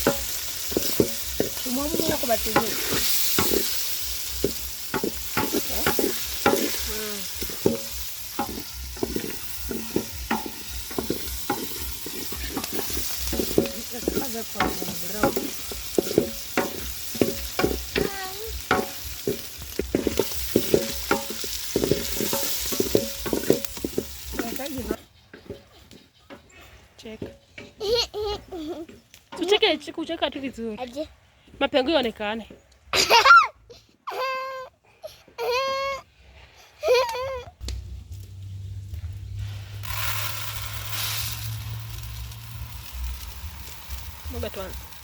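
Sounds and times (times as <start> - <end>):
meat sizzling in a pot: 0.0 - 25.6, 37.6 - 45.0
spoon scraping and knocking pot: 0.0 - 26.6.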